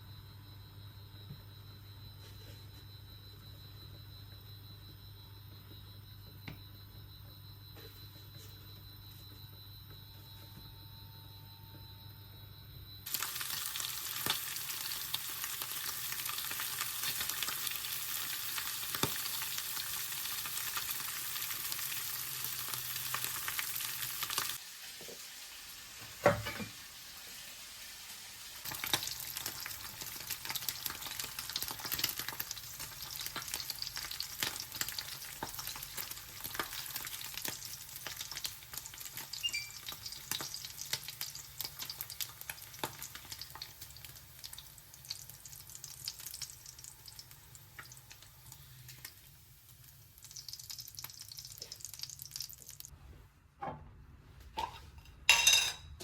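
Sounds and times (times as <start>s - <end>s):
food sizzling in a frying pan: 13.1s - 52.9s.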